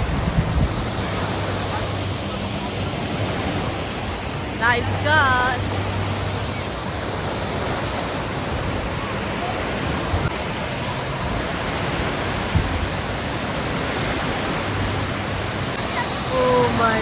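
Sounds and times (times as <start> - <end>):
falling water rushing: 0.0 - 17.0.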